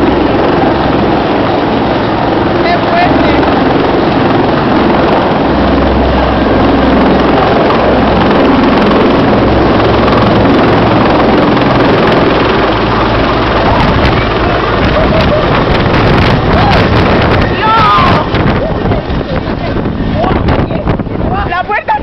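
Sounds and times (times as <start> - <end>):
helicopter engine and rotor: 0.0 - 22.0
wind buffeting microphone: 0.0 - 22.0.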